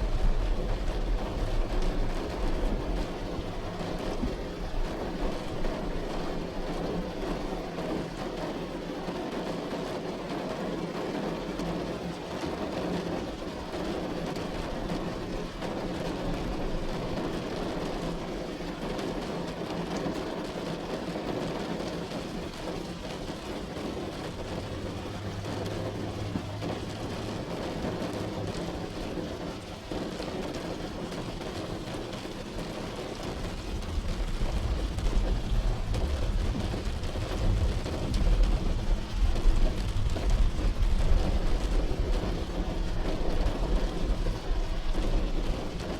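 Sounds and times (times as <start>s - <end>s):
rain on hard surface: 0.0s - 45.9s
deep low rumble: 33.2s - 45.9s.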